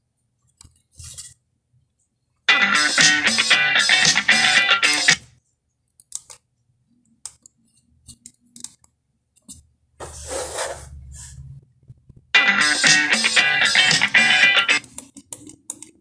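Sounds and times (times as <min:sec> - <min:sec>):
music: 0:02.5 - 0:05.3, 0:12.3 - 0:14.8.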